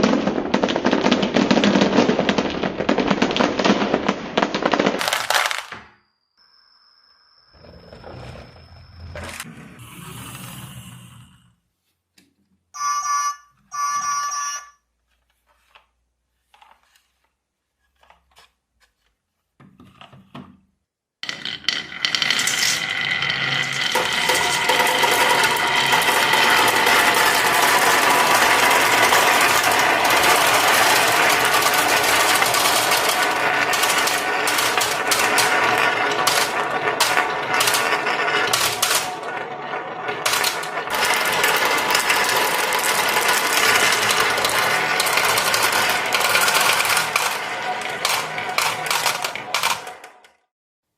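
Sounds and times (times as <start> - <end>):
marbles rolling and clacking: 0.0 - 6.1, 21.2 - 50.5
short beeps: 12.8 - 14.8.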